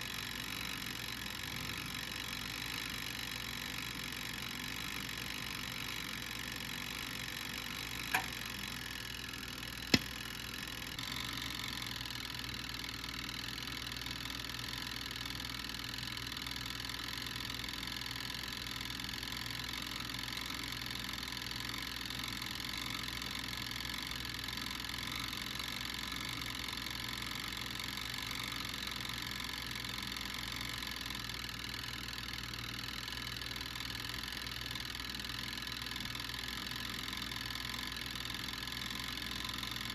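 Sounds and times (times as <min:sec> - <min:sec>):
sharp pops: 0:09.9 - 0:10.3.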